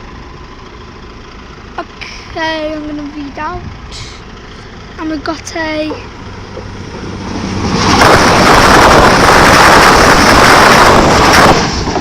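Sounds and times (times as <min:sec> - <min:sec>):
train passing close by: 0:02.4 - 0:12.0
wind buffeting microphone: 0:03.5 - 0:04.2, 0:07.0 - 0:12.0.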